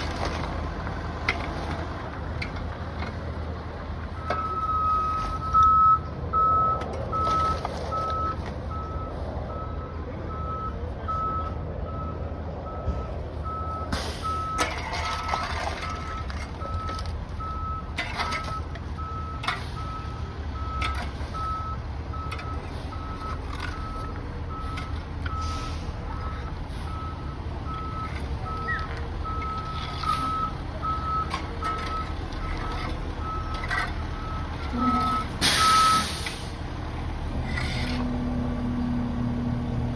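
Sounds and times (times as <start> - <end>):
diesel engine running: 0.0 - 39.9
truck reversing alarm beeping: 0.0 - 39.9
debris banging and clattering: 13.9 - 25.4, 26.0 - 36.1.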